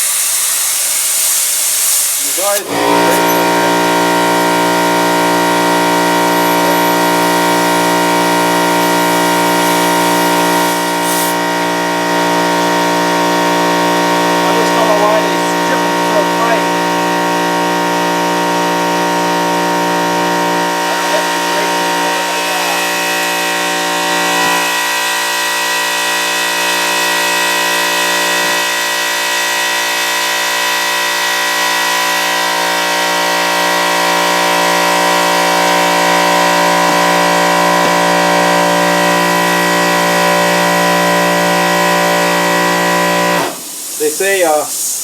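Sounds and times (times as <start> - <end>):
air compressor motor humming: 0.0 - 45.0.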